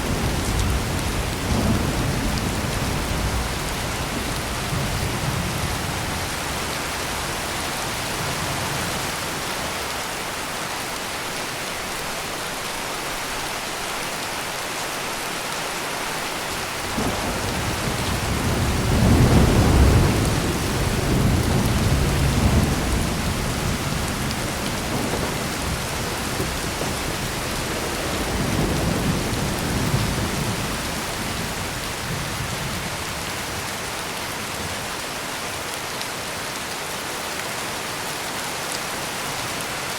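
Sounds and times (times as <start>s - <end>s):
thunder rumbling: 0.0s - 9.2s, 16.8s - 33.7s
heavy rain pouring: 0.0s - 39.9s.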